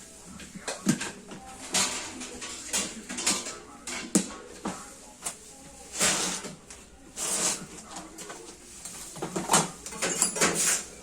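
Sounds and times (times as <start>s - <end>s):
scraping or rubbing noises: 5.8s - 11.0s.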